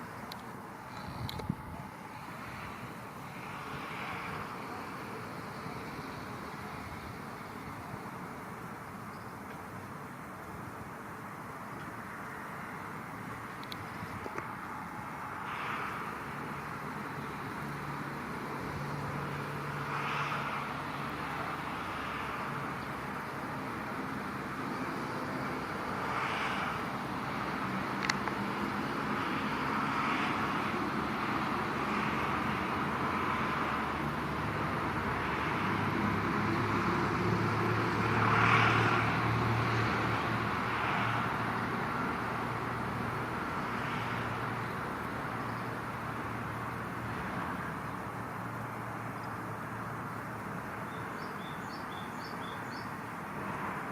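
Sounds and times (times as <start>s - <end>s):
road traffic noise: 0.0s - 53.9s
vehicles passing: 0.0s - 53.9s.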